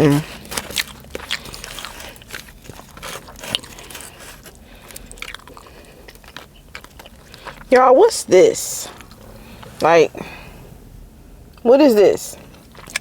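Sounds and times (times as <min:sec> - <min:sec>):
person chewing food: 0:00.0 - 0:11.6, 0:12.4 - 0:13.0
mouth clicks and smacks: 0:12.6 - 0:13.0.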